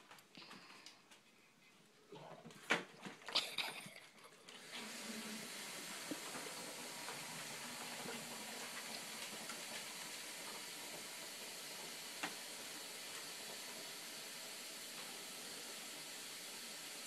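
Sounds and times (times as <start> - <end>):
steady hiss: 4.6 - 17.0.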